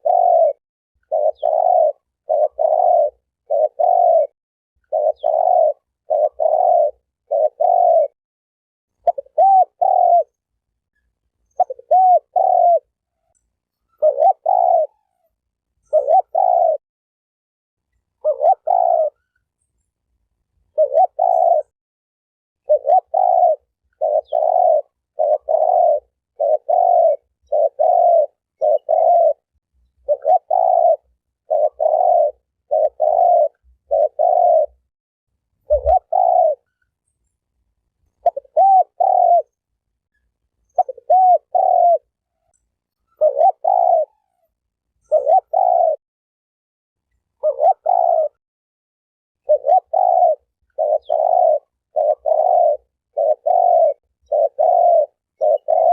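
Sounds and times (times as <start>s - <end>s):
dove cooing: 0.0s - 8.2s, 9.0s - 10.4s, 11.5s - 13.3s, 13.9s - 16.8s, 18.2s - 19.4s, 20.7s - 21.7s, 22.6s - 34.9s, 35.6s - 36.8s, 38.2s - 39.6s, 40.6s - 46.0s, 47.3s - 48.4s, 49.4s - 55.9s.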